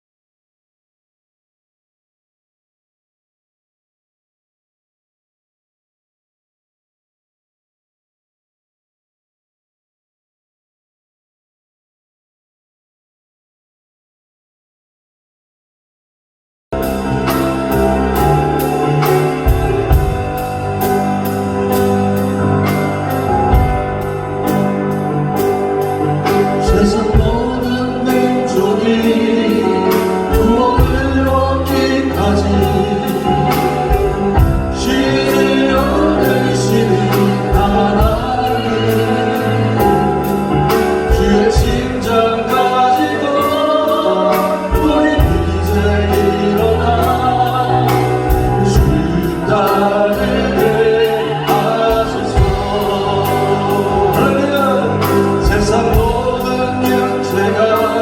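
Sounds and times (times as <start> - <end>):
band with bass and drums: 16.8 - 58.0
voices singing together: 26.3 - 58.0.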